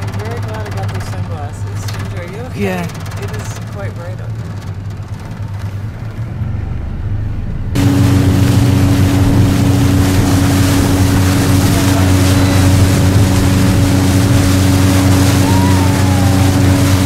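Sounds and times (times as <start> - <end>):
boat engine humming: 0.0 - 17.0
wind and water rushing: 7.8 - 17.0.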